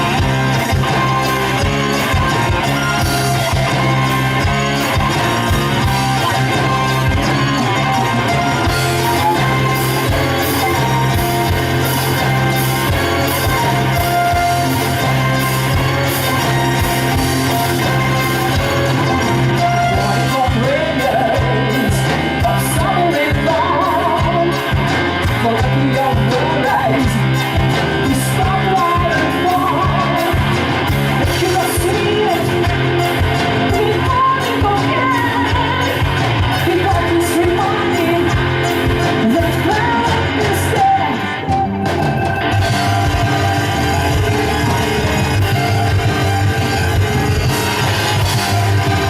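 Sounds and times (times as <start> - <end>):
distorted electric guitars: 0.0 - 49.0
drums: 0.0 - 49.0.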